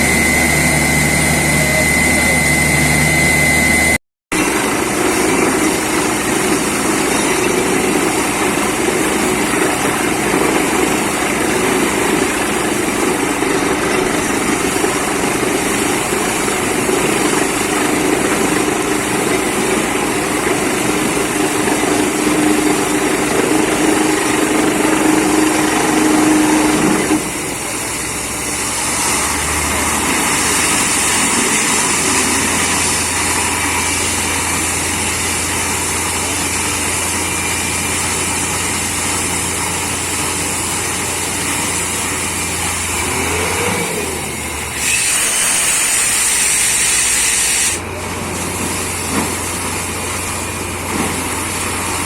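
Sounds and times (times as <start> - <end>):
drilling rig engine drone: 0.0 - 52.0
loud hiss: 44.1 - 52.0.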